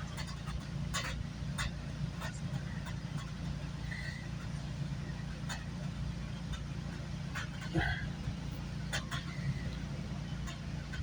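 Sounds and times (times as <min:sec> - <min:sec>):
train interior drone: 0:00.0 - 0:11.0.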